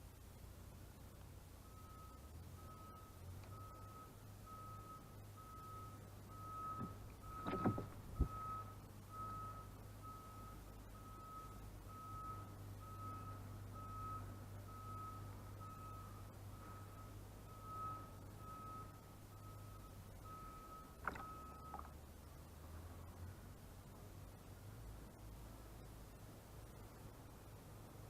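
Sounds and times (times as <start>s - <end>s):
low engine hum: 0.0s - 28.0s
reversing alarm beeping: 1.6s - 21.9s.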